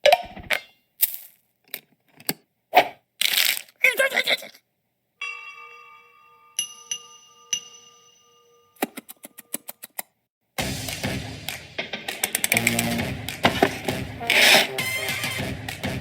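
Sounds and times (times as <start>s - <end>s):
ringing chime-like tones: 5.2s - 8.8s.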